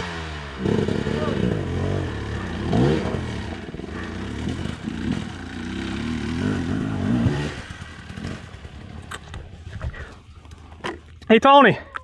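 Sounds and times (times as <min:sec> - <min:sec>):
dirt bike engine revving: 0:00.0 - 0:09.1.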